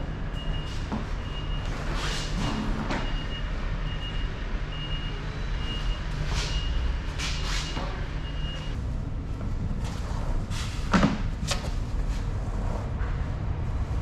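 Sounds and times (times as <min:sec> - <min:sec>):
reversing alarm beeping: 0:00.0 - 0:08.8
diesel engine running: 0:00.0 - 0:10.9.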